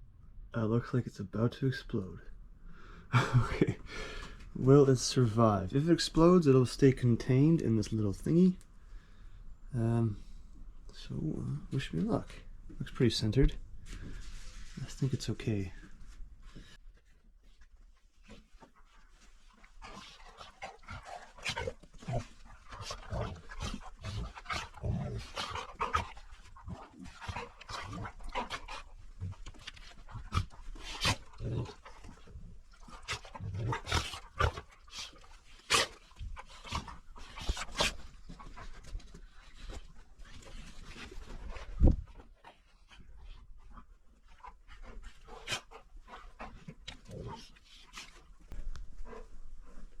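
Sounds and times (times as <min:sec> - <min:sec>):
dog panting: 0:18.2 - 0:50.0.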